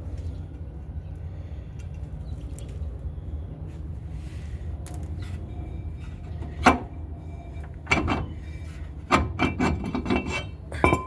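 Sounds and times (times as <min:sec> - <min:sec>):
metal brake parts knocking and clinking: 0:06.0 - 0:11.0.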